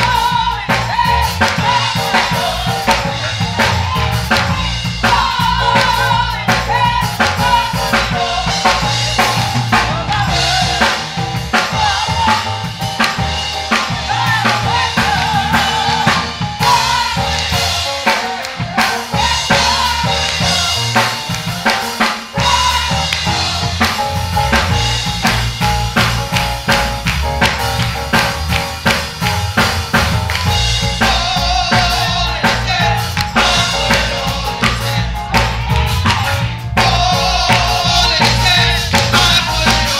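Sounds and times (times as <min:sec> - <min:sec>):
bass line: 0:00.0 - 0:39.9
drum kit playing a busy beat: 0:00.0 - 0:39.9
person singing: 0:30.6 - 0:39.9.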